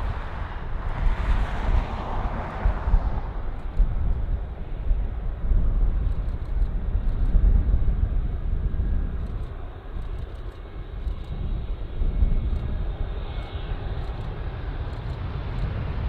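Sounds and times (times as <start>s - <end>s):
jet airliner rushing whoosh: 0.0s - 4.0s
low jet rumble: 0.0s - 16.0s.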